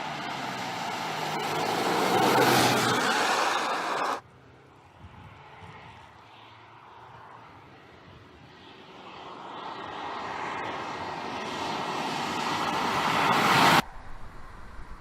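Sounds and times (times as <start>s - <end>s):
approaching vehicle rushing: 0.0s - 4.2s.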